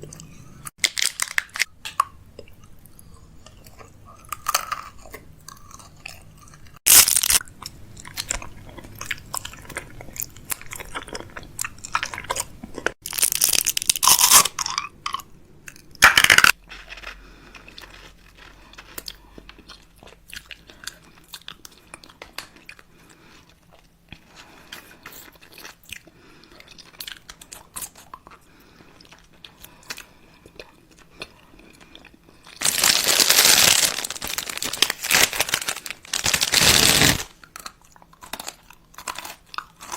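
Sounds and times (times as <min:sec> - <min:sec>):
crunchy chewing: 0:16.7 - 0:39.9.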